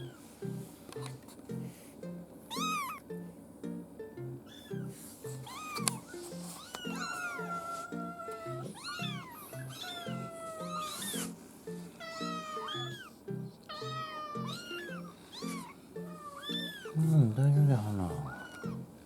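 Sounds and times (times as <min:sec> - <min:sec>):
light background music: 0:00.0 - 0:19.0
kitten mewing: 0:02.5 - 0:03.0, 0:04.5 - 0:11.4, 0:12.0 - 0:13.1, 0:13.7 - 0:17.0, 0:18.1 - 0:18.9.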